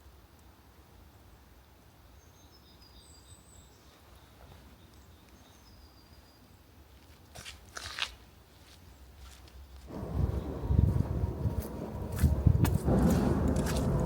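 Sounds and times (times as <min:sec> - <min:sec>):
faint background rumble: 0:09.9 - 0:14.0.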